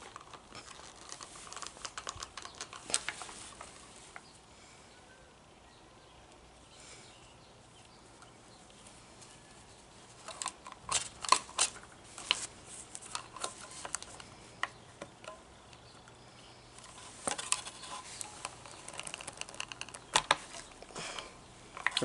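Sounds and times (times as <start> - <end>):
clicks of small parts handled: 10.2 - 16.2, 16.8 - 22.0.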